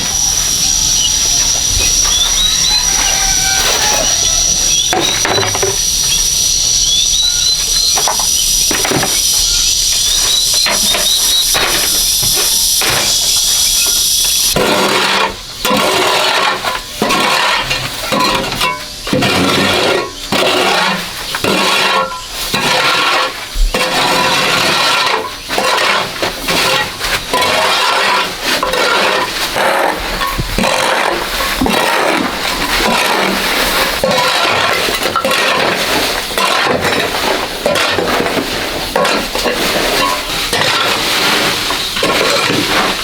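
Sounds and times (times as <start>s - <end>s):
piglets squealing: 0.0s - 8.6s
high hiss: 0.0s - 14.6s
short rising chirps: 0.0s - 14.6s.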